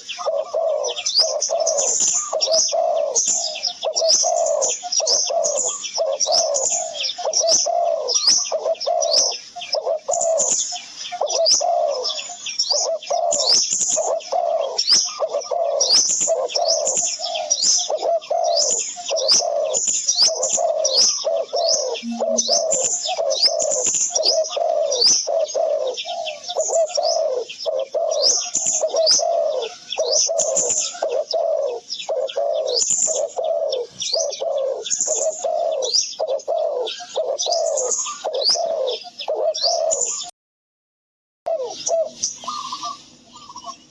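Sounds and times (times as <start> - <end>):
doves cooing: 0.0 - 40.3, 41.5 - 43.9
high quick bird chirps: 22.0 - 23.2.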